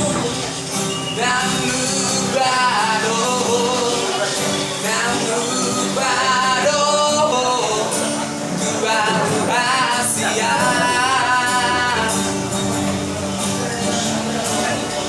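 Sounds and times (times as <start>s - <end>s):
instrumental accompaniment: 0.0s - 15.0s
person singing with vibrato: 0.0s - 15.0s.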